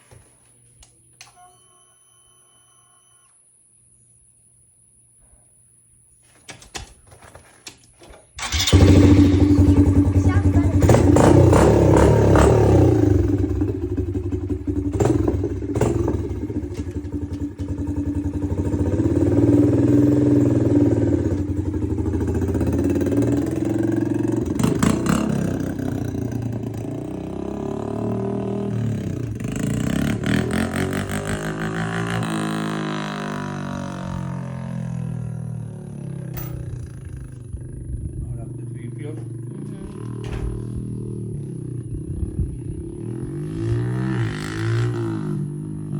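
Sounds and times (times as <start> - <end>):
dirt bike engine revving: 8.4 - 38.4, 39.2 - 45.9.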